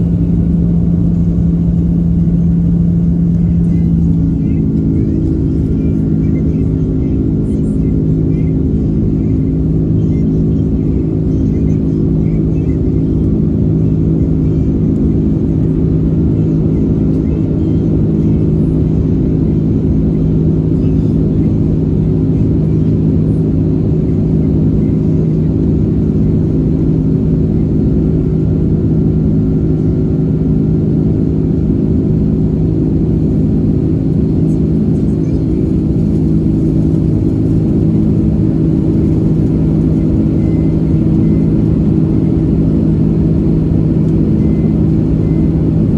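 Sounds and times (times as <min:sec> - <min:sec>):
airplane cabin drone: 0:00.0 - 0:45.9.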